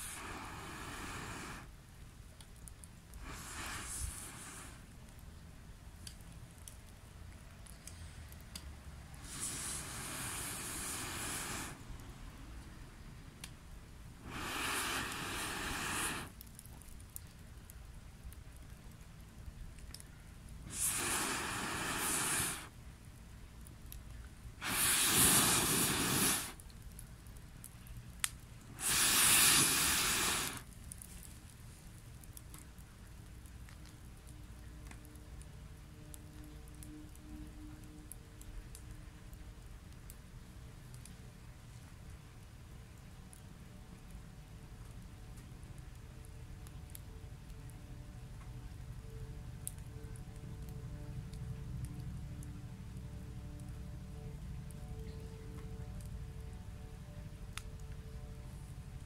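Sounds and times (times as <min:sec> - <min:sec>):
gas torch burner hissing: 0:00.0 - 0:01.8, 0:03.2 - 0:04.9, 0:09.2 - 0:12.0, 0:14.2 - 0:16.4, 0:20.6 - 0:22.8, 0:24.6 - 0:26.6, 0:28.7 - 0:30.7
faint clicks: 0:02.3 - 0:03.3, 0:04.7 - 0:08.7, 0:15.0 - 0:20.6, 0:30.5 - 0:40.2.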